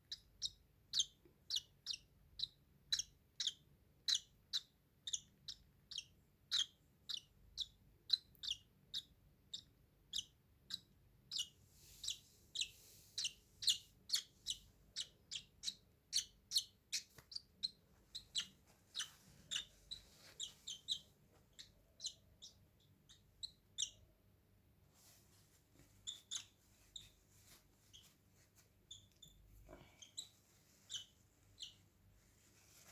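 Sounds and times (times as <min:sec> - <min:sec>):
baby bird peeping: 0:00.0 - 0:24.2, 0:25.9 - 0:28.2, 0:28.8 - 0:31.9.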